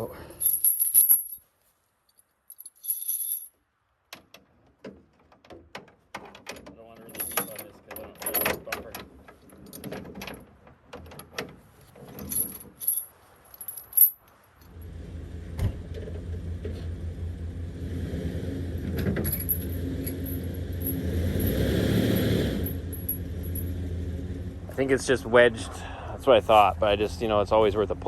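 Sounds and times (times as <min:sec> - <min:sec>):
chain clinking and rattling: 0:00.0 - 0:01.5, 0:02.1 - 0:03.6, 0:07.0 - 0:10.4, 0:11.1 - 0:14.8, 0:18.8 - 0:24.0
vehicle engine under load: 0:14.7 - 0:28.0.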